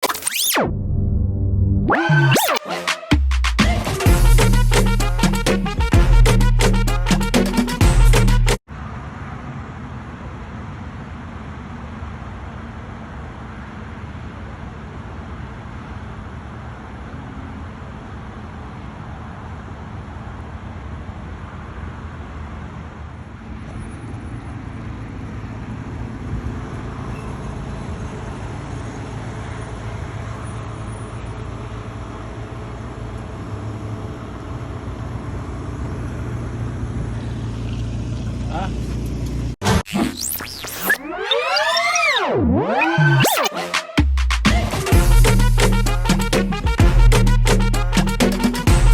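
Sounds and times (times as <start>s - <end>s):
traffic noise: 8.7s - 41.5s
low engine hum: 14.8s - 39.6s.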